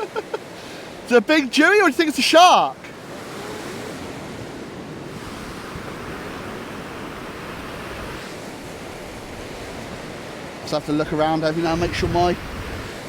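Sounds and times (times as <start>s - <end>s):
waves washing up a beach: 0.0s - 13.0s
wind on microphone: 3.0s - 13.0s.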